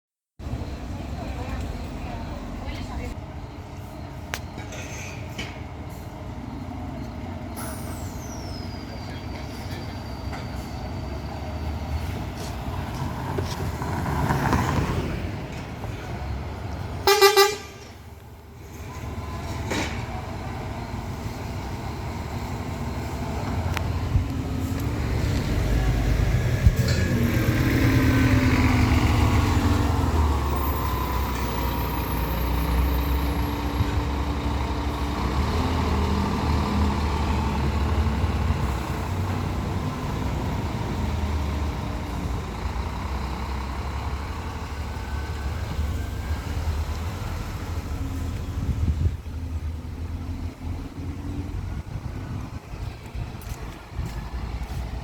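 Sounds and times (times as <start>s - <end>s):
bus diesel engine running: 0.4s - 55.0s
street traffic: 0.4s - 55.0s
vehicle horn toot: 17.0s - 17.9s.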